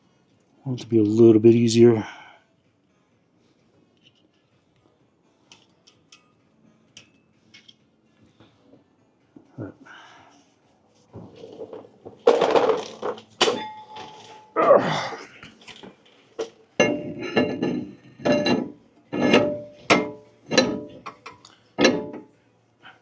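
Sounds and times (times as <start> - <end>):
metal parts clanking: 11.3 - 14.6, 15.4 - 22.3.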